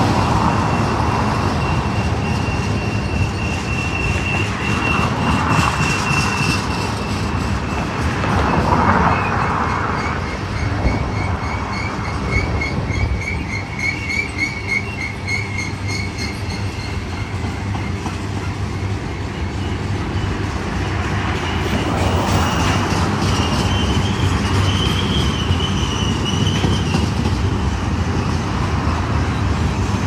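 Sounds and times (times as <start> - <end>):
freight train wheels rumbling on rail: 0.0 - 30.0
high ringing squeal: 0.4 - 7.9, 9.1 - 20.6.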